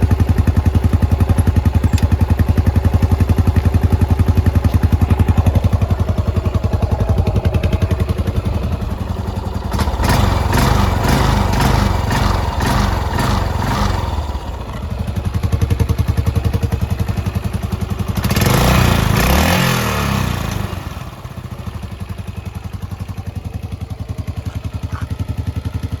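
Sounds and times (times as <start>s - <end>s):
motorcycle engine idling and revving: 0.0s - 26.0s.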